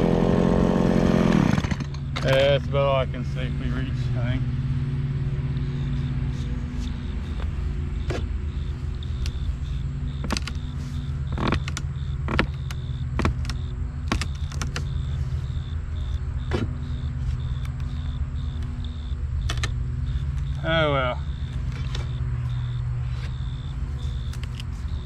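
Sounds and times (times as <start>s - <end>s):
chainsaw engine idling: 0.0s - 25.0s
sharp clicks and knocks: 10.1s - 10.7s, 11.3s - 15.0s, 19.4s - 20.6s.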